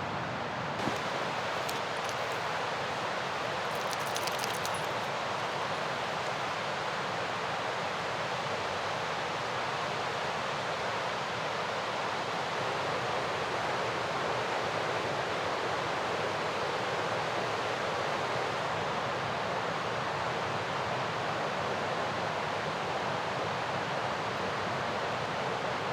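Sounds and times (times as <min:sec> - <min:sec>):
river rushing: 0:00.8 - 0:07.0.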